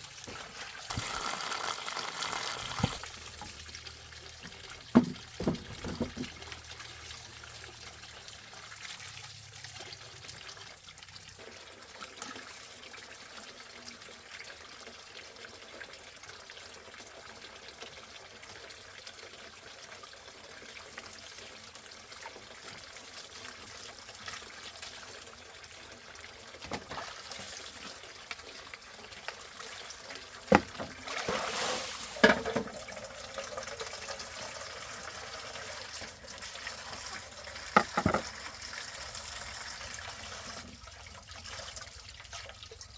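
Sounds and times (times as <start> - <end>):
water trickling: 0.0 - 13.1
sharp knocks: 5.0 - 6.3.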